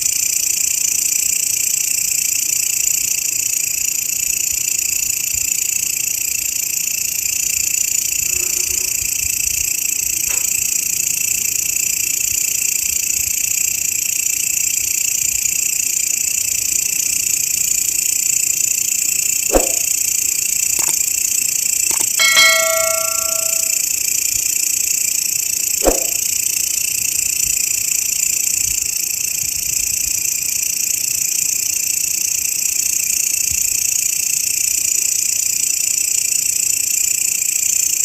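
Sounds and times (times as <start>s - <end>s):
bell-like ringing tone: 22.0s - 23.8s.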